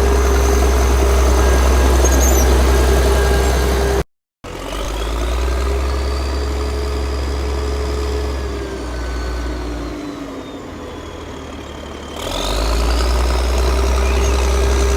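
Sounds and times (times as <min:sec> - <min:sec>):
miniature vehicle motor humming: 0:00.0 - 0:04.0.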